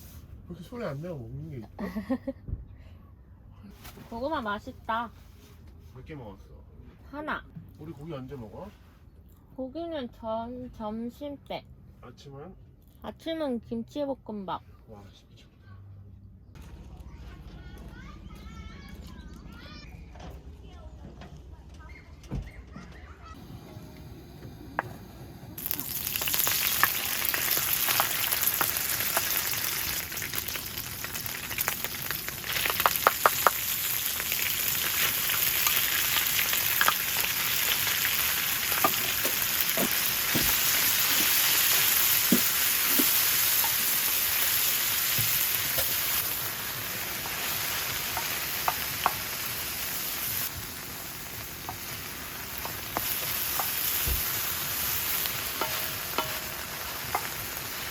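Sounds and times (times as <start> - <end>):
rice sizzling in a pan: 23.4 - 57.9.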